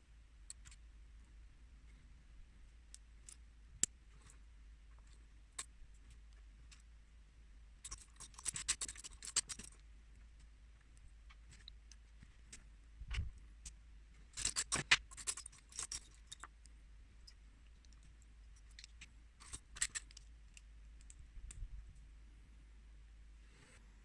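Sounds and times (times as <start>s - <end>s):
plastic bricks clicking: 14.4s - 16.5s.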